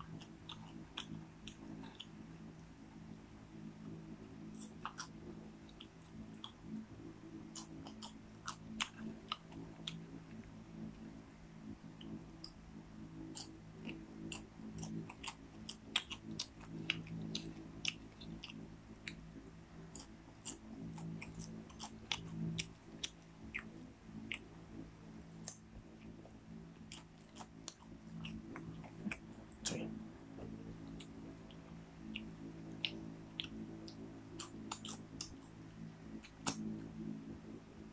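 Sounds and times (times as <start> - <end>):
steady low hum: 0.0 - 37.9
popcorn crunching: 4.6 - 6.7, 7.4 - 10.4, 13.3 - 19.2, 19.9 - 24.4, 32.1 - 35.5.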